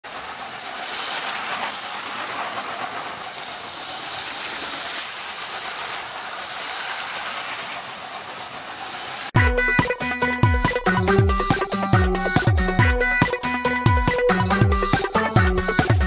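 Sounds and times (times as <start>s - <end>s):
train rushing hiss: 0.0s - 9.4s.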